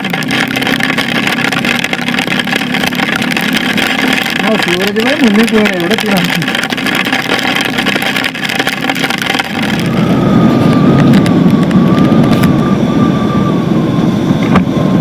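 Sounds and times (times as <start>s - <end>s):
faint steady whine: 0.0s - 15.0s
motorcycle engine rumble: 0.0s - 15.0s
wind noise: 0.0s - 15.0s.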